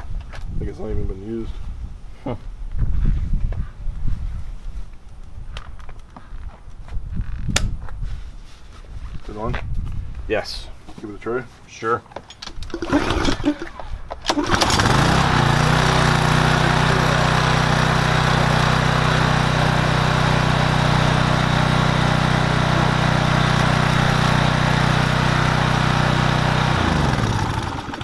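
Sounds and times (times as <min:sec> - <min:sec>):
pressure washer engine running: 0:12.7 - 0:13.6, 0:14.3 - 0:28.0.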